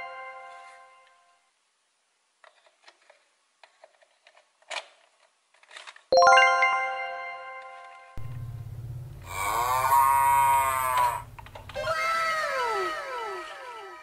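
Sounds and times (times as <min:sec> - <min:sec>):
plastic toy parts clicking: 0:02.4 - 0:06.1
bright chime sound effect: 0:06.2 - 0:08.2
low buzz: 0:08.2 - 0:14.0.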